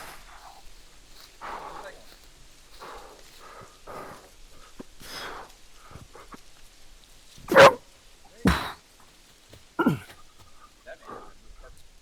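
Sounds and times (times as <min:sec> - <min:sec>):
man breathing hard: 0:00.0 - 0:06.4, 0:08.5 - 0:08.8, 0:09.8 - 0:11.5
grunts of effort: 0:07.5 - 0:07.8, 0:08.4 - 0:08.8, 0:09.8 - 0:10.3.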